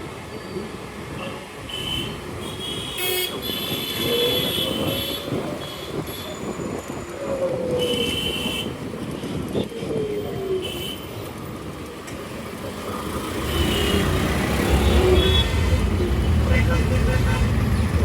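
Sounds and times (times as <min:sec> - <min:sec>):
busy road traffic: 0:00.0 - 0:18.0
vehicle horn toots: 0:13.4 - 0:17.7.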